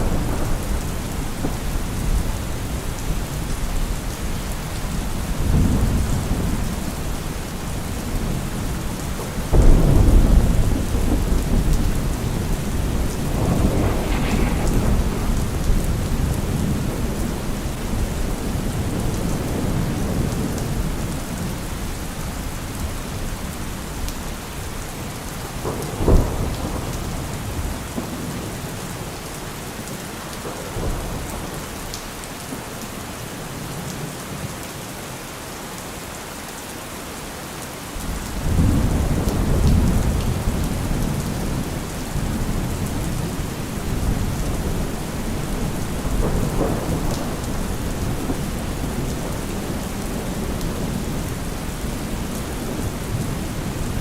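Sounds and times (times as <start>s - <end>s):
loud thunderclap: 0.0s - 3.9s, 7.8s - 21.1s, 25.6s - 28.4s, 38.4s - 54.0s
thunder rumbling: 0.0s - 22.5s, 38.0s - 54.0s
steady rain: 0.0s - 54.0s.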